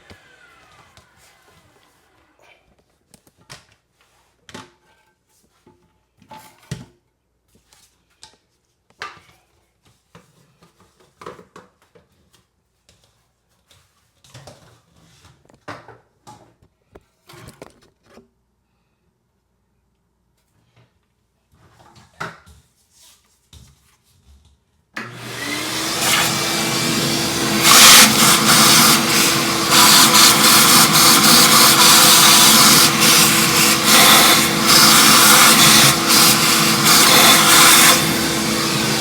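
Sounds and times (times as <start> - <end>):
scraping and knocking on toilet: 26.0 - 39.0.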